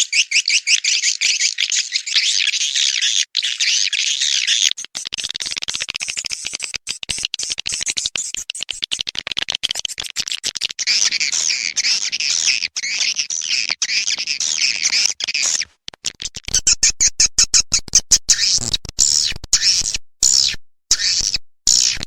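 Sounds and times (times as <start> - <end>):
chirping twitter: 0.0 - 4.8, 10.8 - 15.6
rapid bird clicking: 4.7 - 16.8.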